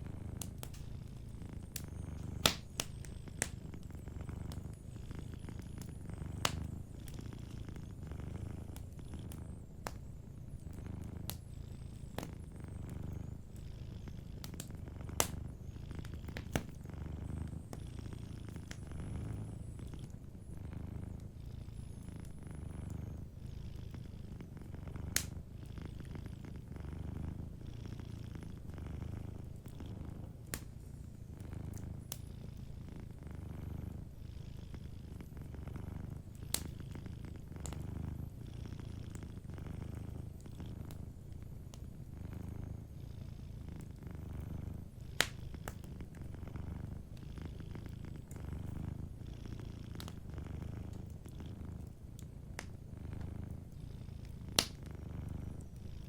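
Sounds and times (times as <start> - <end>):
wood fire crackling pops: 0.0 - 20.2, 25.0 - 25.5, 29.4 - 32.3, 36.0 - 38.2, 44.6 - 47.0, 50.0 - 51.2, 51.8 - 53.4, 54.2 - 55.8
cat purring: 0.0 - 56.0.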